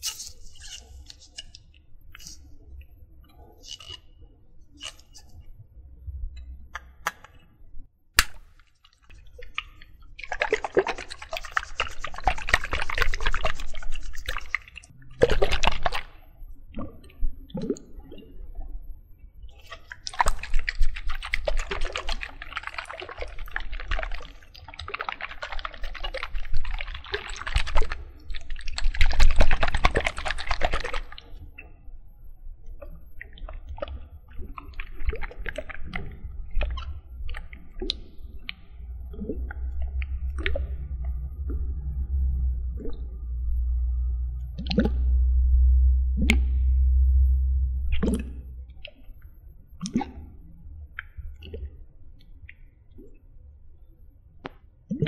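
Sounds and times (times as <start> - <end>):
liquid splashing: 8.3 - 16.2, 19.6 - 31.7, 33.2 - 43.1, 44.5 - 45.2, 47.9 - 49.2.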